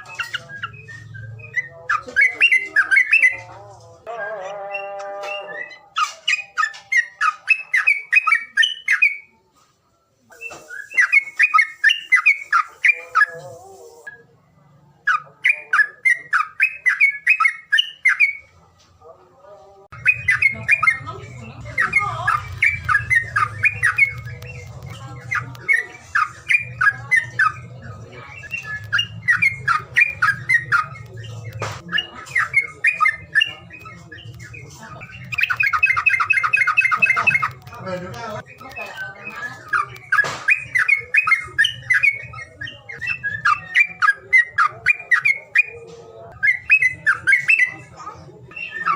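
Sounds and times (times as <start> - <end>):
bird harsh chattering call: 20.0 - 37.8.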